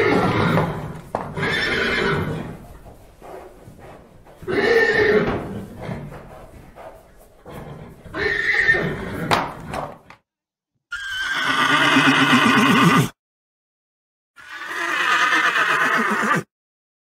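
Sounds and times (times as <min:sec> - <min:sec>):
horse whinnying: 0:00.0 - 0:02.6, 0:04.3 - 0:06.3, 0:07.4 - 0:10.0, 0:10.9 - 0:13.2, 0:14.4 - 0:16.5.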